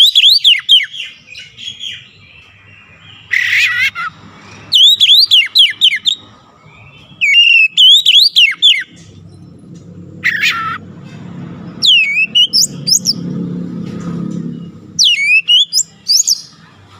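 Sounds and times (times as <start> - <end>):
songbird whistling: 0.0 - 9.0, 11.8 - 13.2, 14.9 - 16.6.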